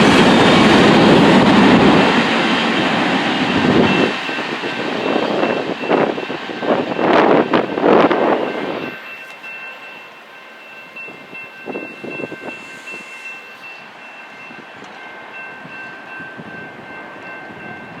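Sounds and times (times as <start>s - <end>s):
train rolling on rails: 0.0s - 18.0s
high ringing tone: 1.9s - 18.0s.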